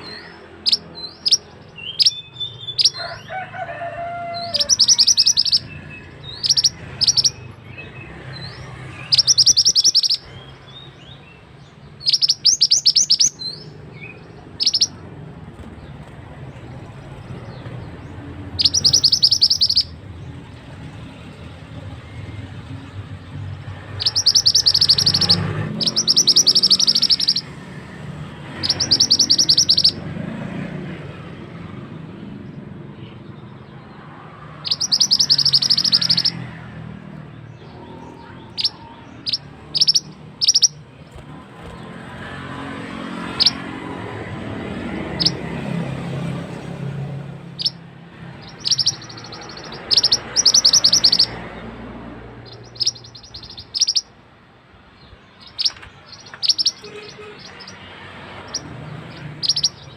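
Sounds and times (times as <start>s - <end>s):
bird rattling trills: 4.4s - 5.6s, 6.4s - 7.5s, 9.1s - 10.3s, 12.0s - 13.5s, 14.5s - 15.0s, 18.6s - 20.0s, 24.0s - 27.5s, 28.6s - 30.0s, 34.6s - 36.4s, 38.6s - 41.8s, 48.4s - 51.4s, 52.4s - 54.1s, 55.4s - 59.9s.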